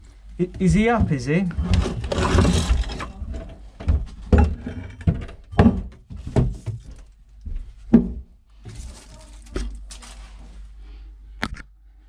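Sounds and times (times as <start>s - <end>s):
knocks and thuds in small room: 0.4s - 8.9s.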